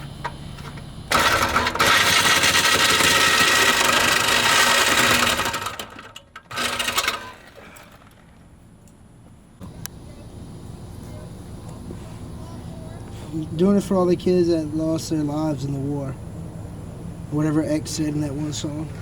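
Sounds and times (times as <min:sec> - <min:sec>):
power tool cutting steel pipe: 0:01.1 - 0:07.6.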